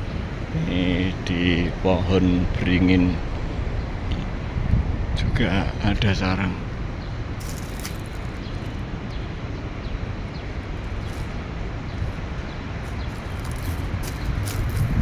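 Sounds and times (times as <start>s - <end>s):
road traffic passing: 6.5s - 15.0s
small birds chirping: 6.9s - 15.0s.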